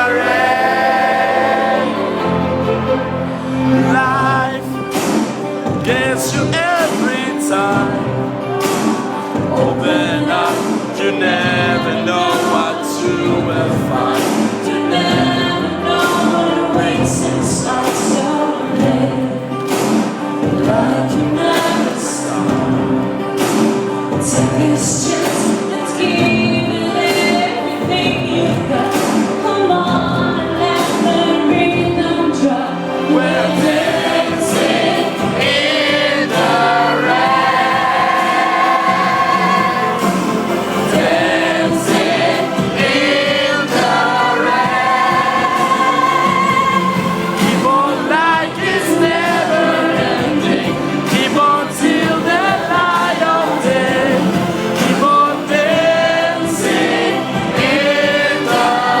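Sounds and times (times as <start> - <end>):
live pop band: 0.0 - 59.0
voices singing together: 0.0 - 59.0
steady drum beat: 3.6 - 32.0, 33.0 - 59.0.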